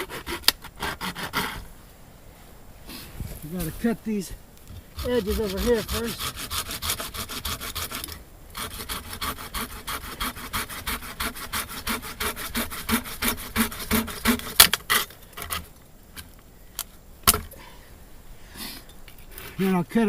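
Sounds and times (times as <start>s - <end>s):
hand saw cutting wood: 0.0s - 1.6s, 5.0s - 15.7s
wood cracking: 12.9s - 17.6s.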